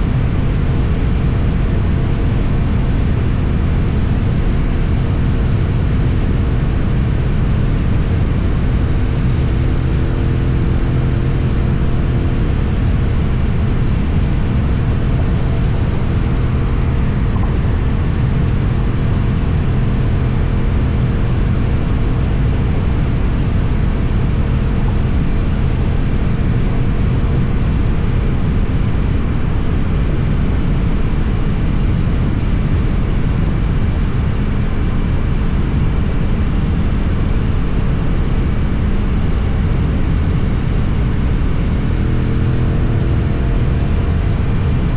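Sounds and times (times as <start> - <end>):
motorcycle engine running: 0.0 - 30.2
low wind rush: 0.0 - 44.9.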